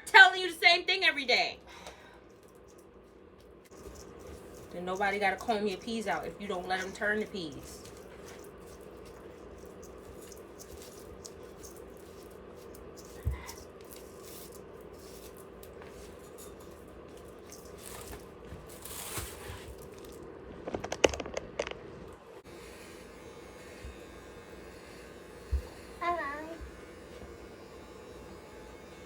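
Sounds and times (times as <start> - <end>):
clippers crackling through hair: 3.7 - 16.6, 22.5 - 29.0
hair clippers humming: 22.4 - 29.0.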